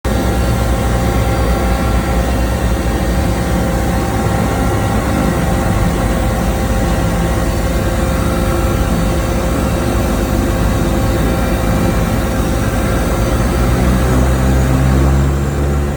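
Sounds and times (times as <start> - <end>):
seaplane engines droning: 0.0 - 15.9.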